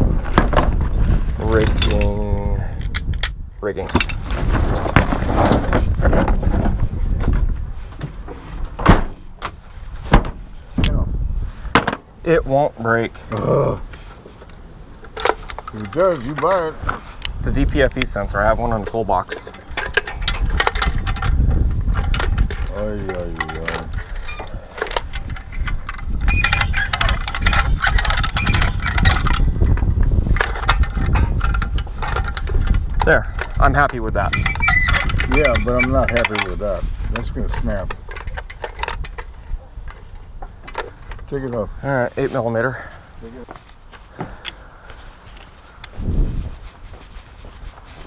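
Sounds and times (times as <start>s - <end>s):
metallic clinks and rattles of tools: 1.5s - 5.3s, 14.5s - 41.3s
hardware clattering: 1.5s - 6.4s, 15.0s - 41.4s.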